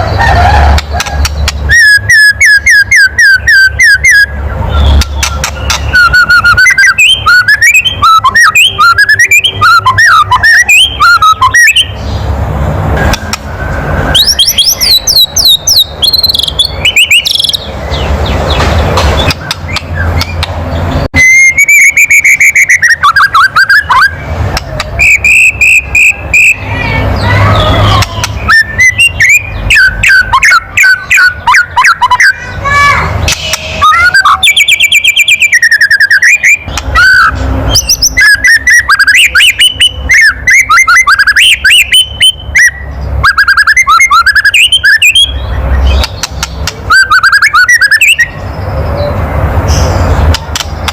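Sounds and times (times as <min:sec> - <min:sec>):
bird whistled song: 0:00.8 - 0:12.3, 0:13.0 - 0:32.7, 0:33.3 - 0:50.9
bird rattling click calls: 0:46.0 - 0:46.8.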